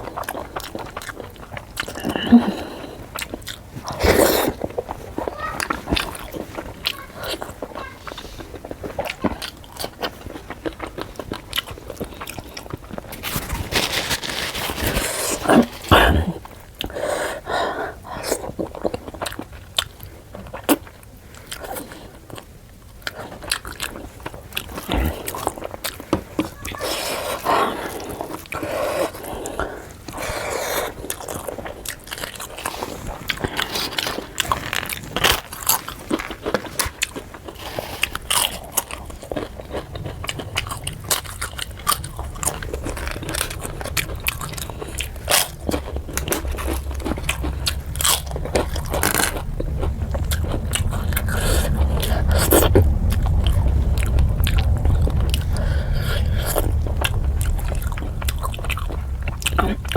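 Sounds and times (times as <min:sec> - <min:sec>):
chewing and crunching: 0:00.0 - 0:59.9
low rumble: 0:38.0 - 0:59.9.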